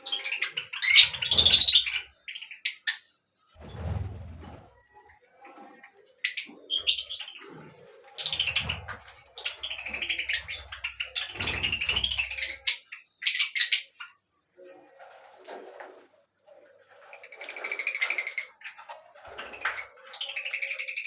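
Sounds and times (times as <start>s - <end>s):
birds chirping: 0.0s - 15.1s.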